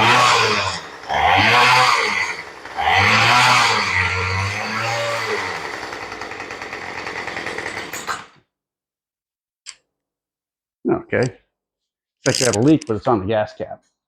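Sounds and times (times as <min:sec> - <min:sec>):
rototiller engine running: 0:00.0 - 0:08.4.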